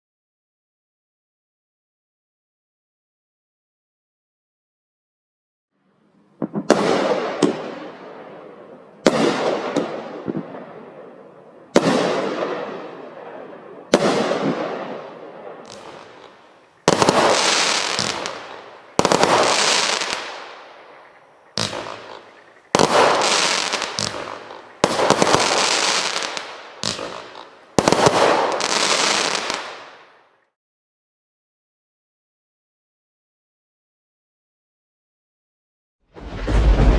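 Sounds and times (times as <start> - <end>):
firework aerial bursts: 13.9 - 30.2.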